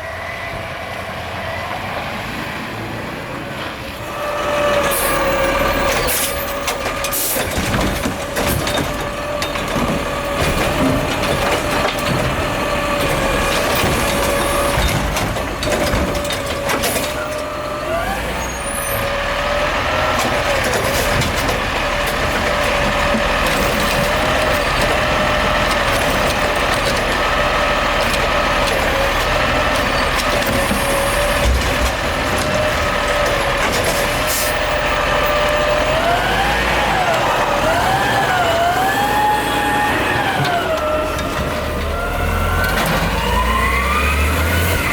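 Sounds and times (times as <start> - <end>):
garbage truck hydraulic whine: 4.0 - 44.9
bangs and clatter: 4.9 - 17.4, 28.0 - 34.6.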